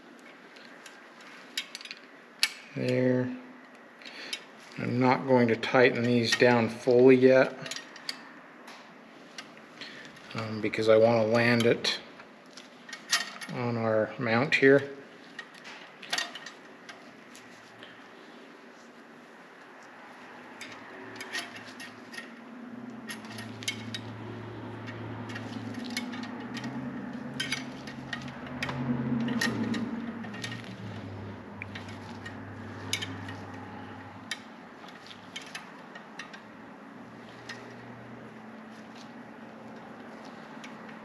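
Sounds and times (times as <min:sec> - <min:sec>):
metallic clicks of hand tools: 0:24.8 - 0:36.4.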